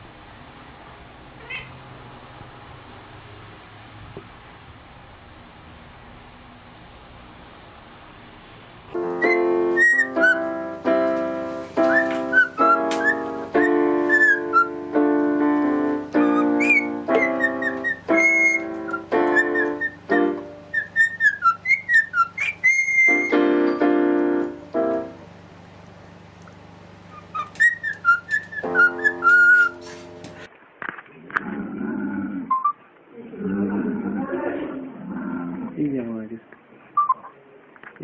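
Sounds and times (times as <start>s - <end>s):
piano-like notes: 8.9s - 30.5s
whistled tune: 9.0s - 10.6s, 11.8s - 15.0s, 15.6s - 23.9s, 27.1s - 29.9s.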